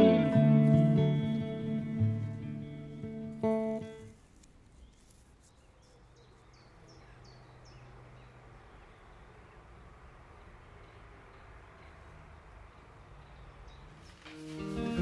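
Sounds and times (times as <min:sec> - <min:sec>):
bird chirping: 0:04.7 - 0:14.0.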